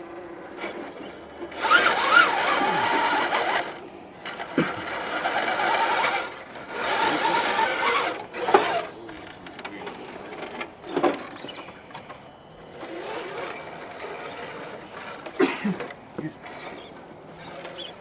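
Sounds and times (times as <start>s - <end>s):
electric motor whining: 0.5s - 18.0s.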